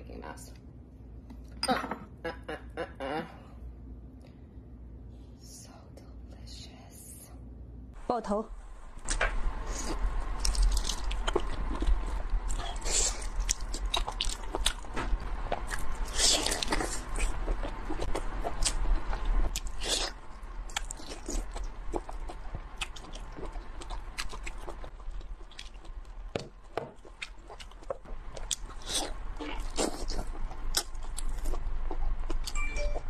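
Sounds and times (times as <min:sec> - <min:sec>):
low steady hum: 0:00.0 - 0:33.0
person chewing wetly: 0:09.8 - 0:14.9, 0:15.5 - 0:26.4, 0:27.0 - 0:32.9.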